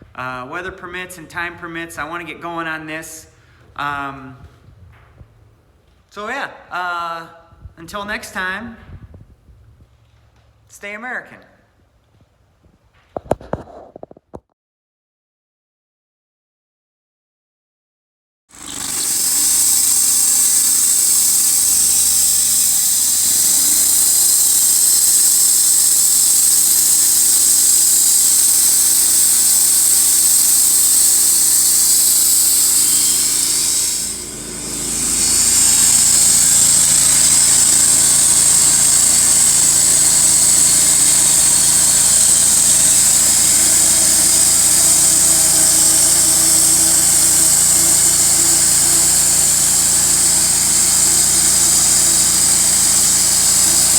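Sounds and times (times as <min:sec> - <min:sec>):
sawmill engine with hiss: 0:18.5 - 0:53.9.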